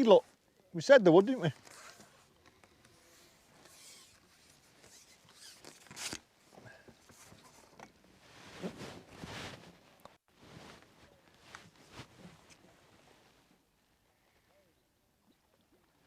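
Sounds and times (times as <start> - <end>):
soft rustling: 1.5 - 13.7.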